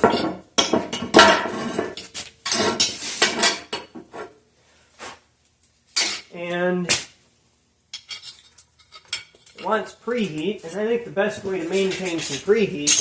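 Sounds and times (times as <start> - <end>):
metal objects clattering and scraping: 0.0 - 4.3, 8.0 - 10.8, 11.4 - 13.0.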